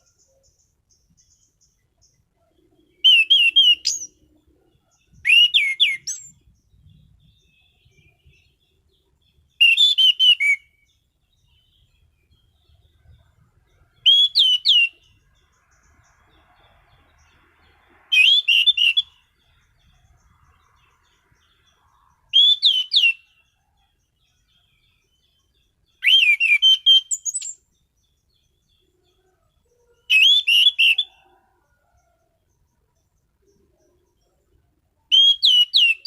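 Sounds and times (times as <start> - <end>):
thrush singing whistled phrases: 3.0 - 4.2, 5.2 - 6.4, 9.6 - 10.9, 14.0 - 15.2, 18.0 - 19.3, 22.3 - 23.4, 25.9 - 27.7, 30.1 - 31.3, 35.1 - 36.0.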